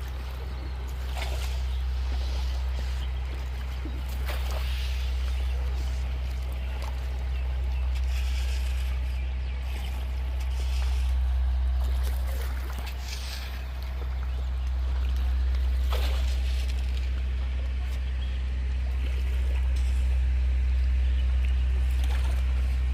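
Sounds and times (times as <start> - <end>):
low rumble: 0.0 - 22.9
river water gurgling and splashing: 0.0 - 22.9.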